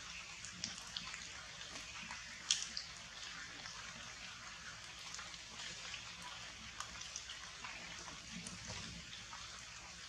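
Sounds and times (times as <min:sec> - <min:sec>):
close raindrops landing: 0:00.5 - 0:03.0.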